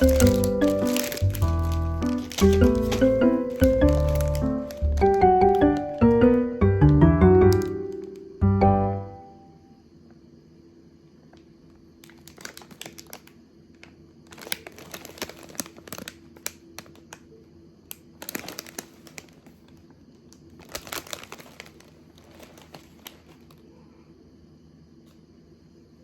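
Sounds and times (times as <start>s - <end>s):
packaging crinkling and rustling: 0.0s - 8.3s, 12.0s - 17.3s, 17.9s - 23.6s.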